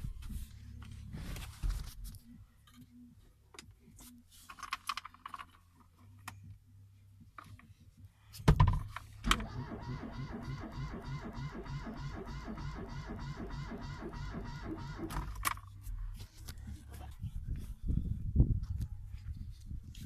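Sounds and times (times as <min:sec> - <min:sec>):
car engine starting and running: 0:08.8 - 0:17.0.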